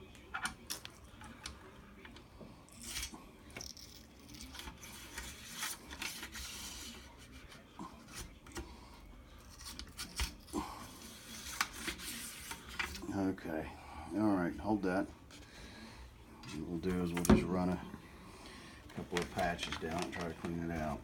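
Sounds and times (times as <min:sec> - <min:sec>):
rubbing and scraping: 0:10.9 - 0:13.0.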